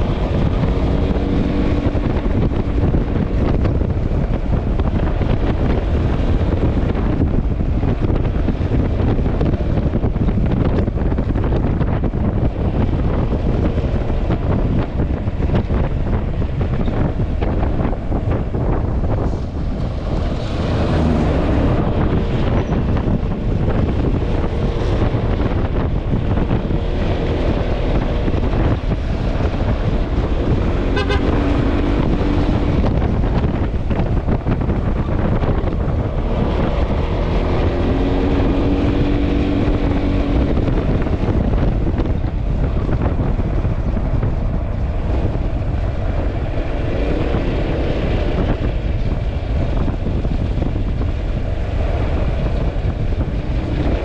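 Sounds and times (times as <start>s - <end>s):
scooter engine and road noise: 0.0s - 54.0s
wind buffeting microphone: 0.0s - 54.0s.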